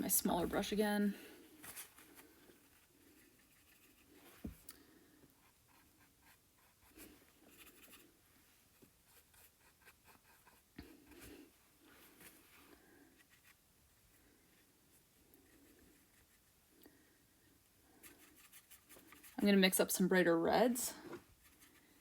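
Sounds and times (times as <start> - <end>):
paintbrush scratching and dabbing: 5.4 - 11.2, 17.9 - 19.7, 21.3 - 22.0.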